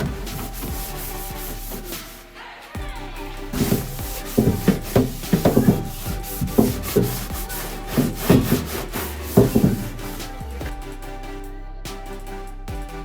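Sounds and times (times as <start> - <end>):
sponge scrubbing microwave: 0.0 - 2.2, 3.5 - 10.6
soft background music: 0.0 - 13.0.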